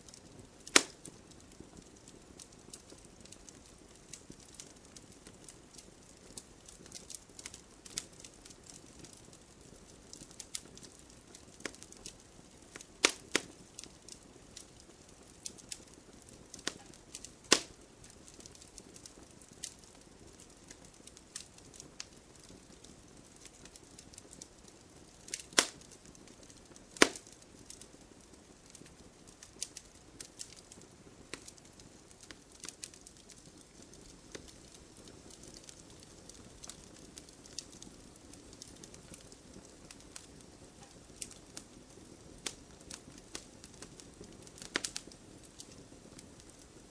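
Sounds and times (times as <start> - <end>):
wood fire crackling: 0.0 - 46.9
sharp loud fire pops: 27.0 - 27.2.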